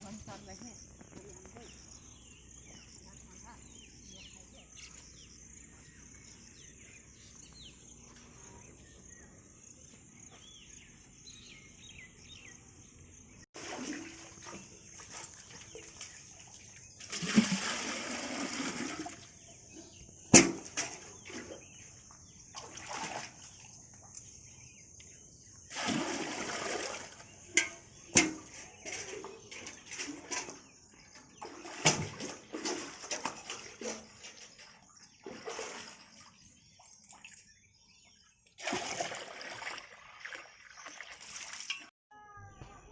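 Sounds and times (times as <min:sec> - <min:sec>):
faint insects: 0:00.0 - 0:41.6
faint birds: 0:00.0 - 0:42.9
water splashing and pouring: 0:13.6 - 0:21.8, 0:22.5 - 0:23.8, 0:25.7 - 0:37.6, 0:38.5 - 0:41.9.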